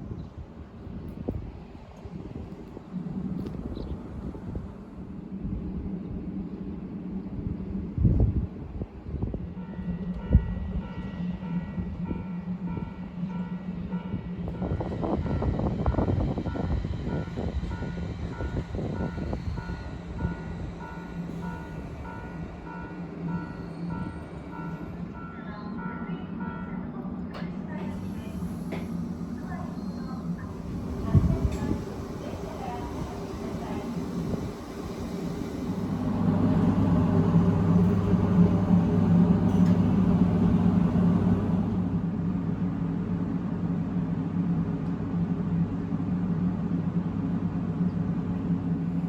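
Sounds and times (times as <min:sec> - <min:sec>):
low train hum: 0:00.0 - 0:49.0.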